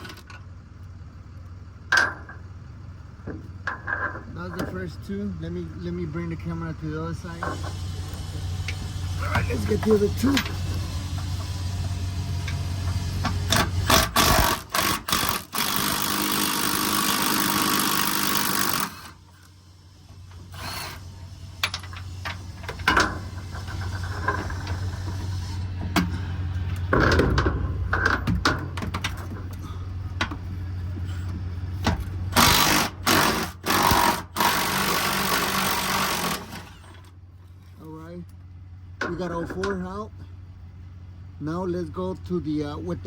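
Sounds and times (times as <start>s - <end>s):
steady low hum: 0.0s - 43.0s
power wrench running: 7.2s - 19.6s, 20.2s - 26.2s, 32.0s - 37.1s.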